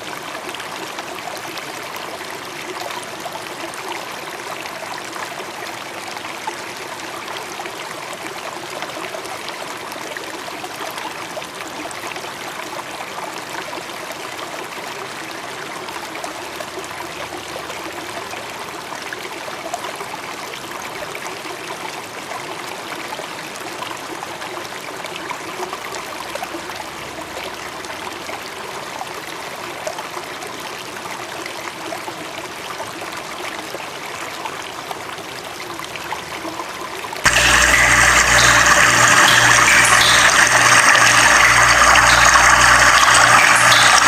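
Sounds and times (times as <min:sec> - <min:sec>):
stream trickling: 0:00.0 - 0:44.0
loud abrupt sound: 0:37.2 - 0:44.0.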